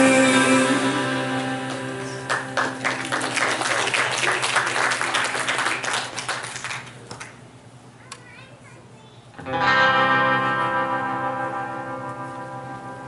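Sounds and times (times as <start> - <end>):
band chord ringing: 0.0 - 2.8, 9.4 - 13.0
congregation applauding: 1.3 - 7.4.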